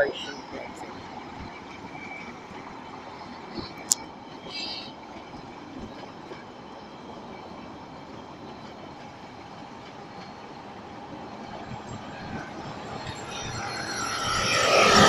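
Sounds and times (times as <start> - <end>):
train wheels rumbling on rails: 0.0 - 15.0
short high screech: 13.1 - 15.0.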